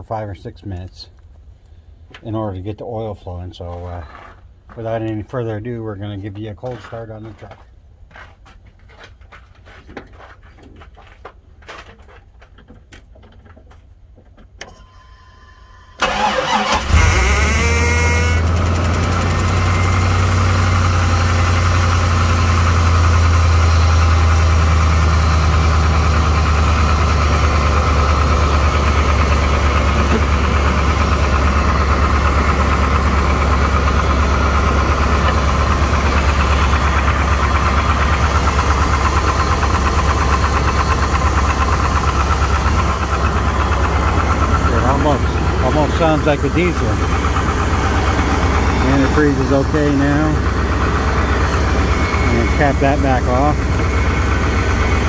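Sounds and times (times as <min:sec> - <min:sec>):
brief steady tone: 0:14.7 - 0:16.0
engine starter cranking: 0:16.0 - 0:20.4, 0:27.6 - 0:55.0
engine idling with rapping: 0:20.3 - 0:55.0.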